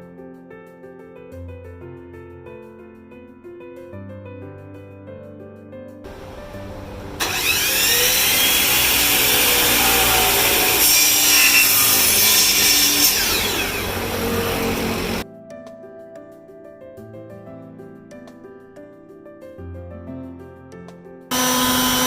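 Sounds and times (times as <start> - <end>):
power saw cutting wood: 6.1 - 15.2, 21.3 - 22.0.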